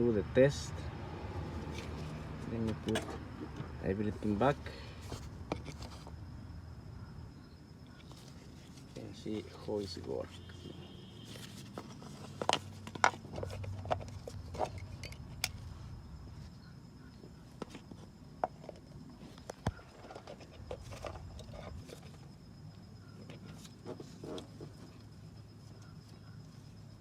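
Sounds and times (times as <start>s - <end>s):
tools and parts clicking: 1.7s - 3.7s, 11.7s - 15.7s.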